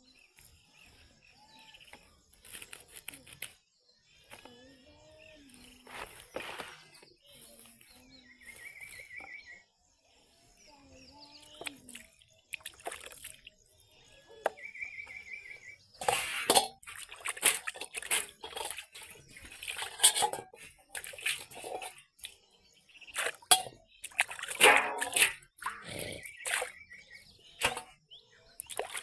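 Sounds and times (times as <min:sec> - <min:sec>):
bird chirping: 0:00.0 - 0:29.0
water splashing and sloshing: 0:11.6 - 0:14.7, 0:15.8 - 0:29.0.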